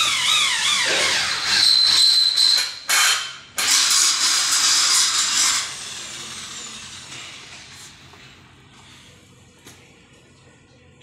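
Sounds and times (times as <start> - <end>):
electric drill grinding into steel: 0.0 - 7.8.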